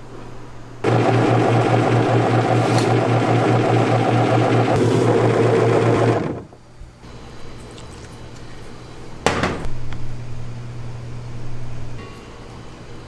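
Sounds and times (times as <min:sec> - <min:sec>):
loud machine running: 0:00.8 - 0:06.6.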